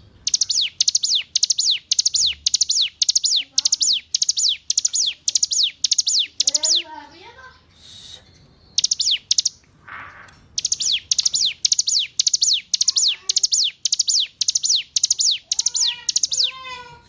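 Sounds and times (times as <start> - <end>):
bird singing rapid high notes: 0.0 - 9.6, 10.4 - 17.0.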